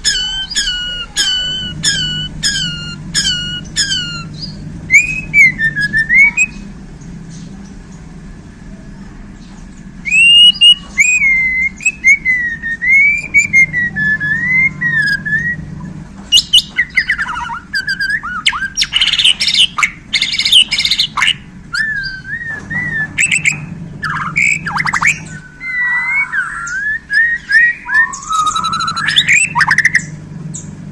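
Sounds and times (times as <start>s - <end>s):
bird singing whistled phrases: 0.0s - 6.7s, 10.0s - 15.7s, 16.3s - 30.7s
steady low hum: 0.0s - 30.9s.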